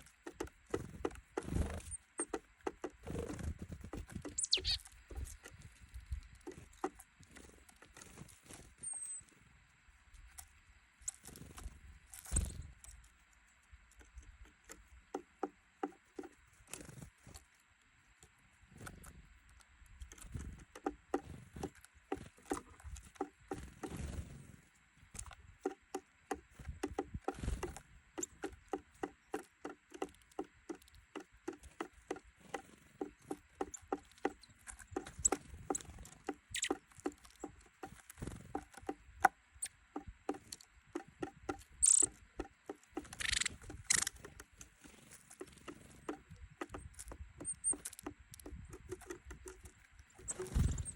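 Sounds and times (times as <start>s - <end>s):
wing flutters: 0.0s - 9.1s, 20.1s - 50.9s
birds pecking at seeds on feeder: 0.0s - 50.9s.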